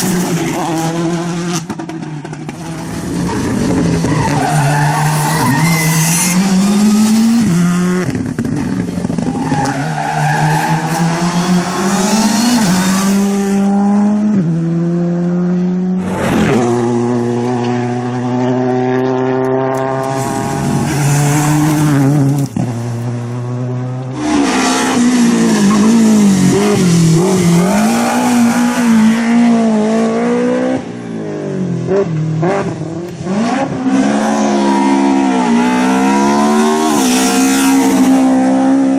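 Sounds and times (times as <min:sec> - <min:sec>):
rally car engines revving: 0:00.0 - 0:38.9
tyre squeal: 0:03.2 - 0:06.5.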